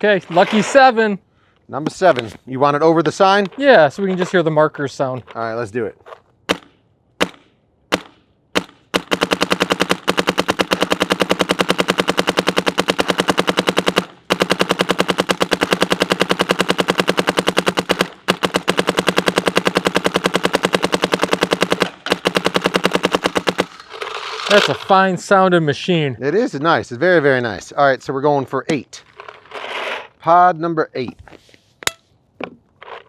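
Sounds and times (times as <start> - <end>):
paintball marker firing: 6.5 - 23.9.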